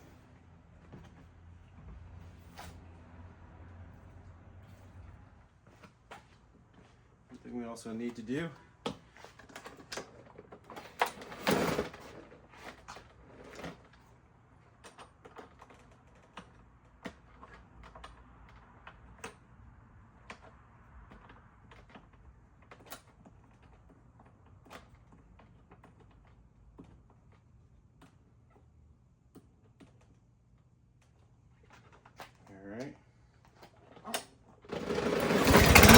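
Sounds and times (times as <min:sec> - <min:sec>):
short clatter: 0:34.7 - 0:35.9.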